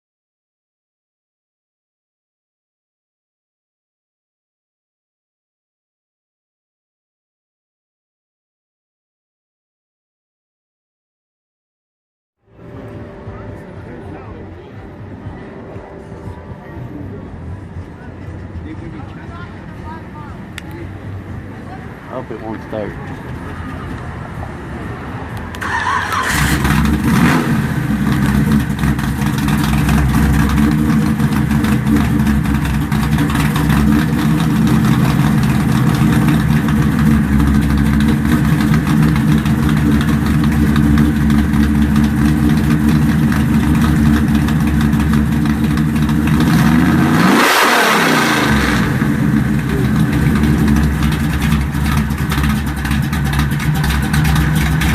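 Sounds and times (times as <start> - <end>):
car engine starting and idling: 12.5 - 54.9.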